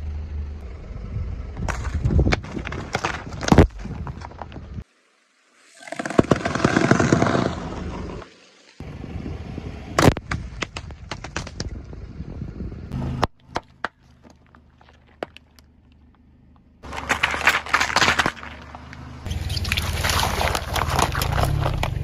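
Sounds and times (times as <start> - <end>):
car rolling rumble: 0.0 - 4.8, 6.4 - 22.0
objects cracking under a tyre: 1.6 - 4.9, 5.9 - 8.2, 10.0 - 12.4, 13.1 - 22.0.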